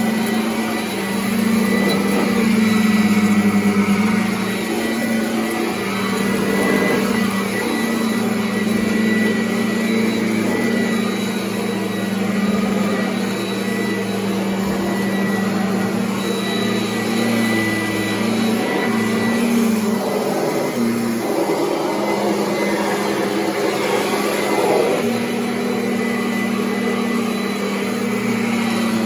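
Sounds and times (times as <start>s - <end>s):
vacuum cleaner running on carpet: 0.0s - 29.0s.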